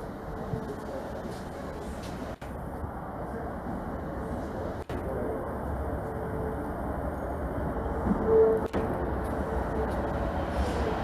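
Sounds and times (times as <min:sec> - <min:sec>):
train running: 0:00.0 - 0:11.0.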